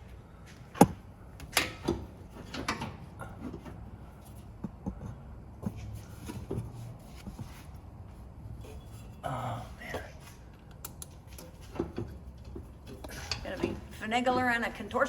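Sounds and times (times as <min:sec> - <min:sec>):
metal parts and tools clanking: 0:00.8 - 0:05.1, 0:08.5 - 0:10.2, 0:11.2 - 0:14.4.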